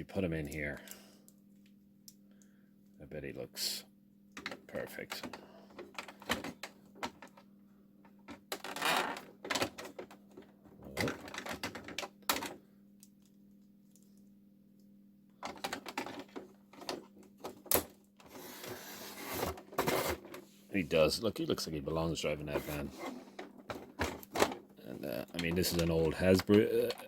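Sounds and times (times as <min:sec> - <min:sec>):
faint steady hum: 0:00.0 - 0:27.0
hard plastic clicking and rattling: 0:10.9 - 0:12.6, 0:15.4 - 0:17.9, 0:23.4 - 0:27.0.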